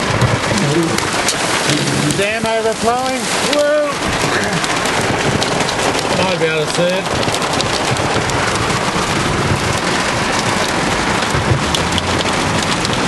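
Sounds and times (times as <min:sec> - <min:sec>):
heavy rain pelting car roof: 0:00.0 - 0:13.0.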